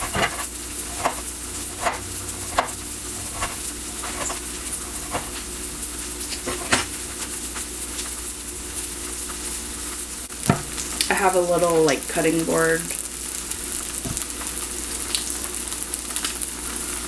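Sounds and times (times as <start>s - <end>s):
knife slicing tomato: 0.0s - 5.4s
food sizzling in oil: 0.0s - 17.0s
knife tapping cutting board: 1.8s - 4.3s, 10.5s - 10.8s, 14.0s - 14.2s.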